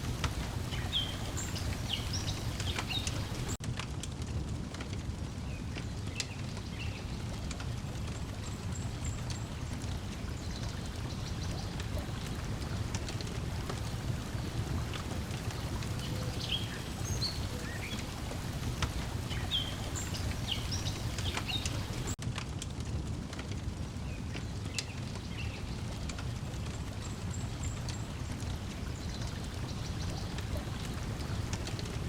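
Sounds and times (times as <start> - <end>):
birds chirping: 0.0 - 3.6, 8.2 - 22.2
lake water lapping: 0.0 - 3.6, 7.4 - 22.2, 25.2 - 32.0
wood fire crackling: 0.0 - 32.0.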